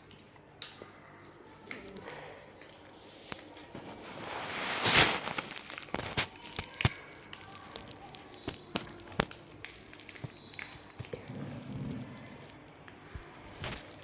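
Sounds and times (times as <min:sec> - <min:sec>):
paper rustling: 0:00.0 - 0:11.3, 0:12.0 - 0:14.0
paper crackling and tapping: 0:00.0 - 0:14.0.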